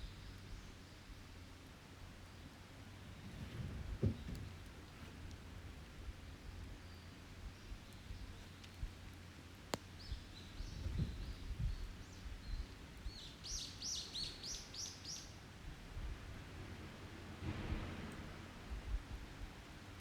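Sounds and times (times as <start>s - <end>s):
campfire pop: 7.8s - 11.9s.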